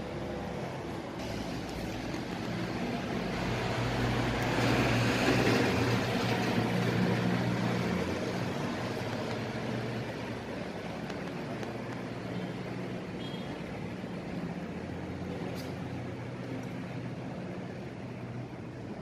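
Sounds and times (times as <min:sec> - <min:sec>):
motor vehicle passing by: 0:01.2 - 0:10.4.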